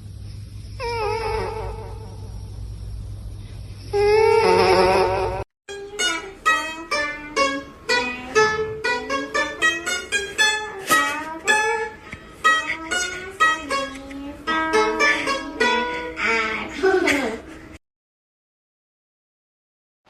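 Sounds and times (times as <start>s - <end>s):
plucked string melody: 5.7s - 16.7s.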